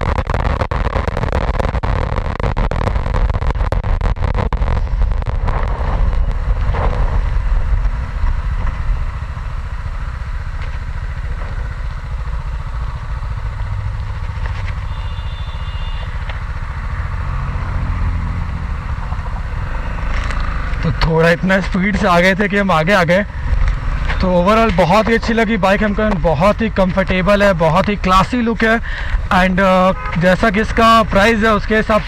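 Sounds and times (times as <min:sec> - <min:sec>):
wind rushing: 0:04.8 - 0:09.1
motorcycle engine under load: 0:05.0 - 0:31.7.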